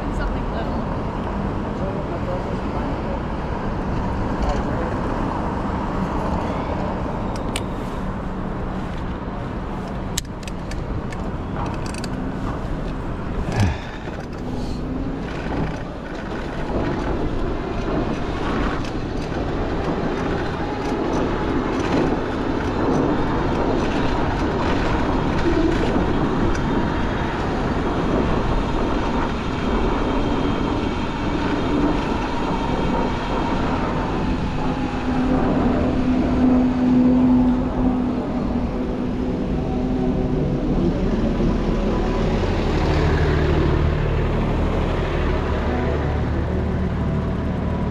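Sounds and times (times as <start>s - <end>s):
low vehicle drone: 0.0s - 47.9s
street traffic rush: 0.0s - 47.9s.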